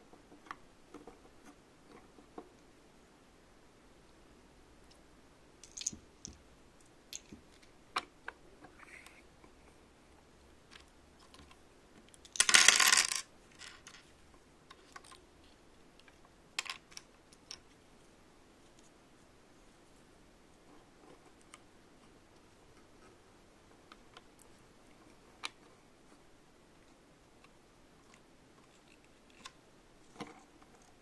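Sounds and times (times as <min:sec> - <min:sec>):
plastic toy pieces clicking: 0:05.6 - 0:06.4, 0:12.2 - 0:14.0.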